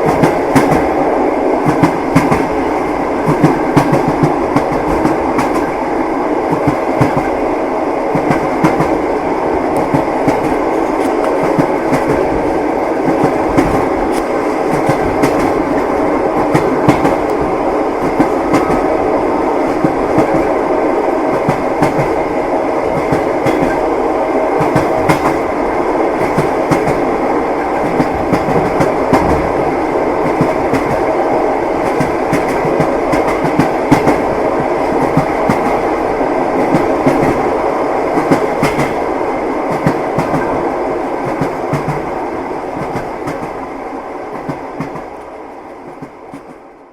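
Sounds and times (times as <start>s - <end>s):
train rumbling on rails: 0.0s - 46.9s.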